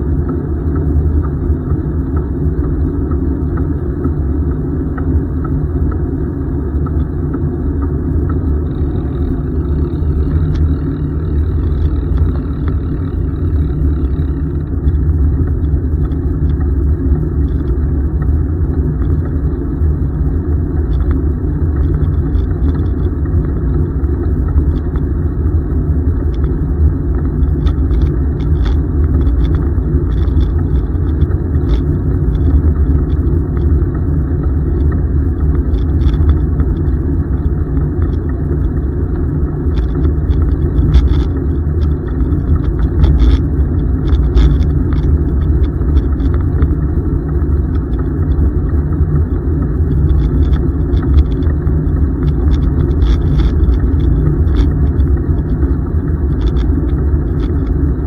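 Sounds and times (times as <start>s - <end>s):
faint ticks: 0.2s - 58.0s.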